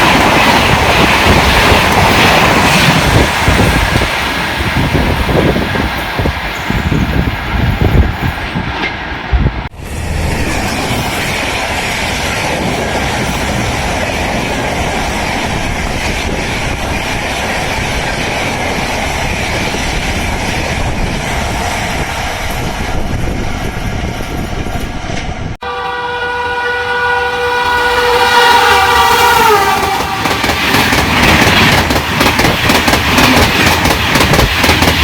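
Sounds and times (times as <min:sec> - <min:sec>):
train passing at speed: 0:00.0 - 0:35.0.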